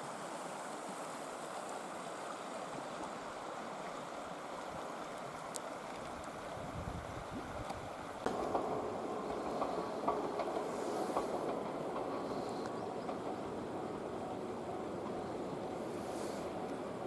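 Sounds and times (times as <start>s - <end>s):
wheels clicking over rail joints: 7.7s - 17.0s
train running past: 8.3s - 17.0s.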